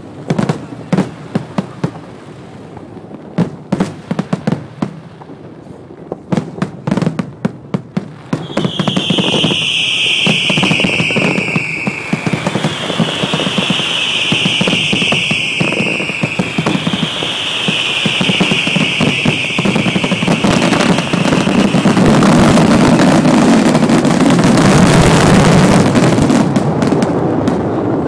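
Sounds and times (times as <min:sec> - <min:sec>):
firecrackers crackling: 0:00.0 - 0:28.0
high wavering whistle: 0:08.4 - 0:23.2.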